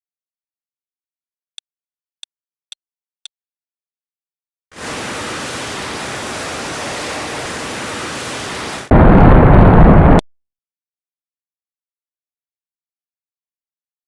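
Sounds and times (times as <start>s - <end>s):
ship engine hiss: 4.8s - 8.9s.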